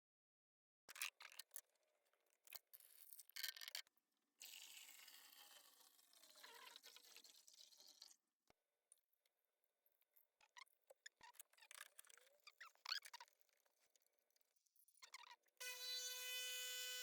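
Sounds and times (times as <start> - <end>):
liquid pouring into container: 6.1 - 8.2.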